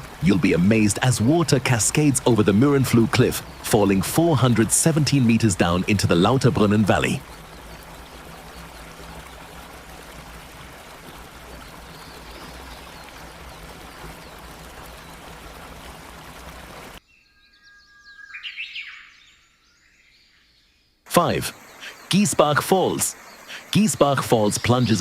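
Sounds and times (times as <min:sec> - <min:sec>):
waterfall rushing: 0:00.0 - 0:06.2, 0:21.1 - 0:25.0
birds chirping: 0:00.0 - 0:10.0, 0:11.4 - 0:15.4, 0:17.0 - 0:25.0.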